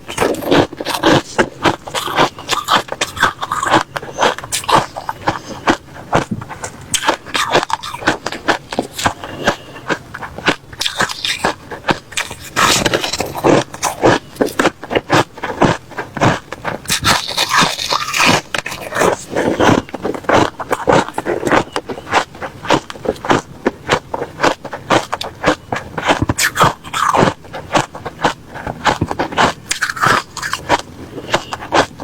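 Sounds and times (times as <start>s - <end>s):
person chewing crunchy ice: 0.0s - 32.0s.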